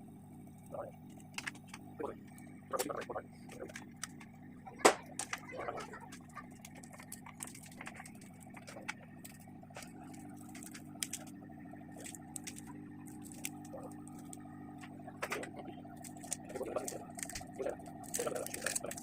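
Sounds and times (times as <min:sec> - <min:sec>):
steady low hum: 0:00.0 - 0:19.0
tools and phone parts clicking: 0:06.1 - 0:11.3, 0:12.0 - 0:14.4.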